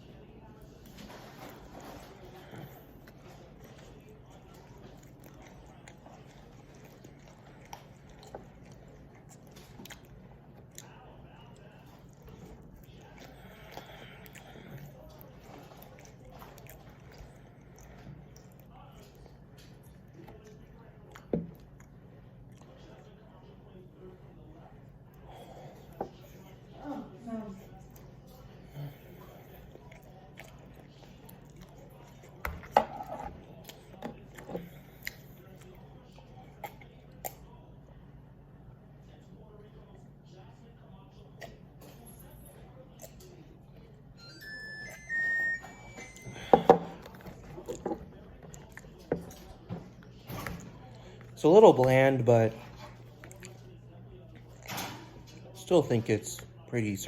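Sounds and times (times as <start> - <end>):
person chewing food: 0.5 - 23.8, 27.7 - 37.9, 42.6 - 55.6
eating mouth sounds: 27.9 - 32.5, 46.8 - 50.1, 52.6 - 54.8.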